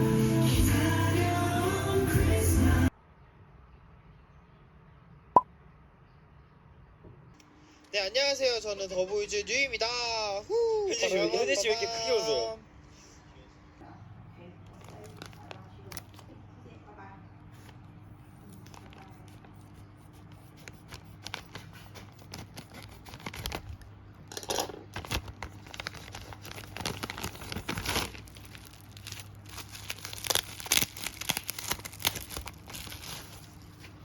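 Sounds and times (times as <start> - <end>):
packaging crinkling and tearing: 14.7 - 16.3, 18.5 - 19.4, 20.5 - 34.0.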